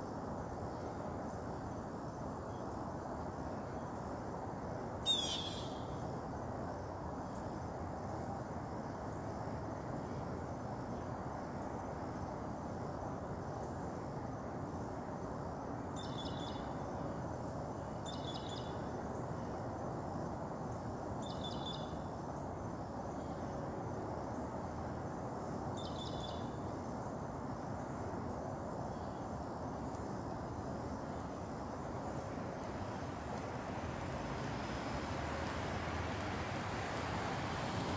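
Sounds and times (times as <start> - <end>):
outdoor background noise: 0.0 - 37.9.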